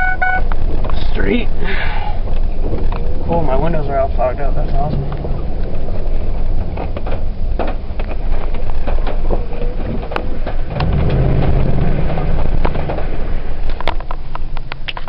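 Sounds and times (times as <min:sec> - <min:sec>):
engine exhaust rumble: 0:00.0 - 0:15.0.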